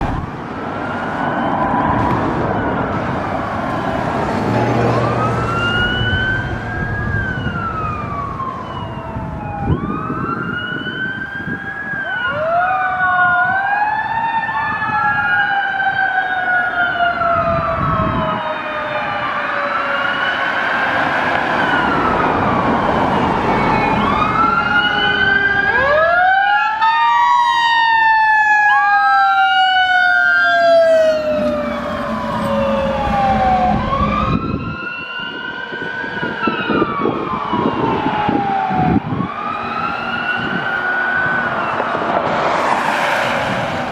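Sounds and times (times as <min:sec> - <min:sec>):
mechanical siren wailing: 0:00.0 - 0:42.3.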